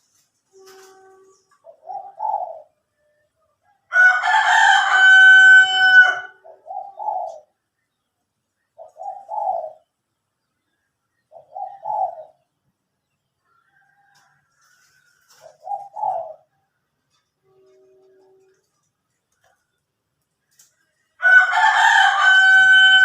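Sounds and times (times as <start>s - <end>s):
doves cooing: 0.6s - 2.9s, 5.4s - 7.6s, 8.8s - 9.9s, 11.3s - 12.5s, 13.8s - 19.6s.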